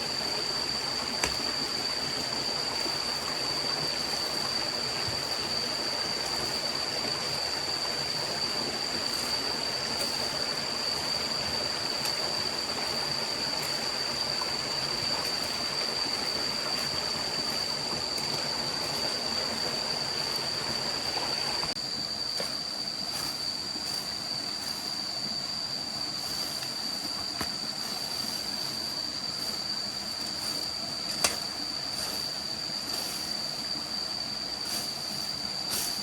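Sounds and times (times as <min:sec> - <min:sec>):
forest stream rushing: 0:00.0 - 0:36.0.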